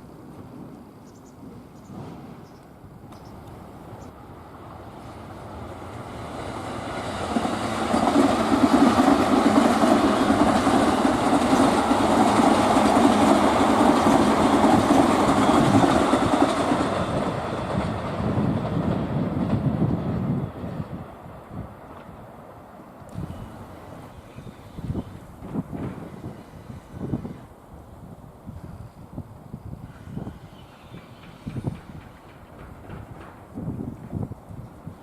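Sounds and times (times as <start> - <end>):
freight train passing: 0.0 - 35.0
wheels clattering over rail joints: 30.7 - 34.3.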